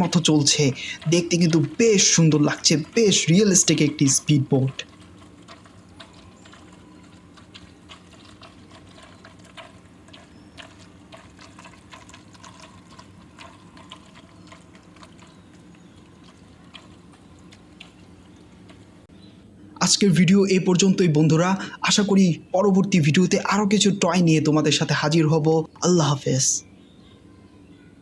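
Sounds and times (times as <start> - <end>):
water splashing and trickling: 0.0 - 19.1
small ticks: 4.7 - 19.0.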